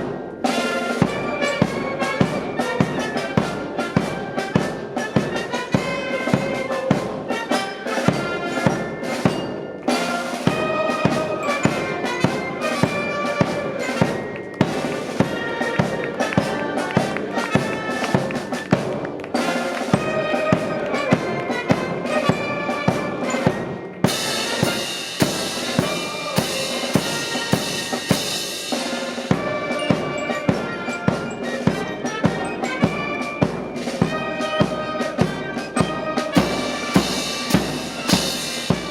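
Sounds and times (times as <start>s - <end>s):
brass band playing a march: 0.0s - 38.9s
bass drum and snare beat: 13.3s - 38.9s
cymbals crashing: 23.4s - 30.6s, 35.8s - 38.9s.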